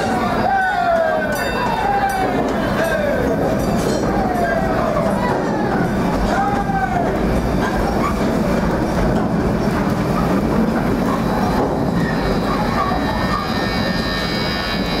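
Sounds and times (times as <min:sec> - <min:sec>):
train wheels rumbling on rails: 0:00.0 - 0:15.0
faint high wheel squeal: 0:11.1 - 0:15.0.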